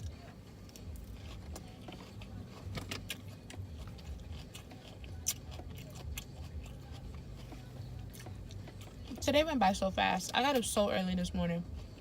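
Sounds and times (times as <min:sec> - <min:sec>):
chewing food crunches: 0:00.0 - 0:09.2
low steady hum: 0:00.0 - 0:12.0.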